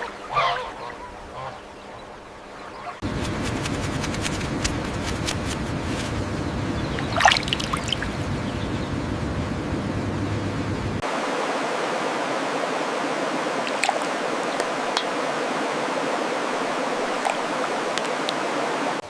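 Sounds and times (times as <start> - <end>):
geese honking: 0.0 - 10.8
stream water flowing: 3.0 - 8.9, 11.0 - 19.0.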